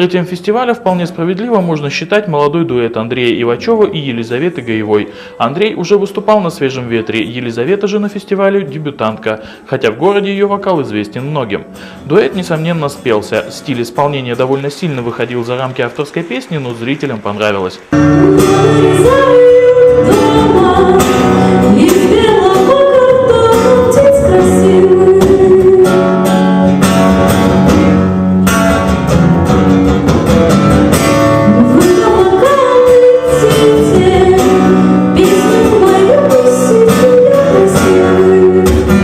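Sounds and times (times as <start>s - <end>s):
acoustic guitar: 0.0s - 39.0s
person singing: 18.0s - 26.5s, 31.5s - 39.0s.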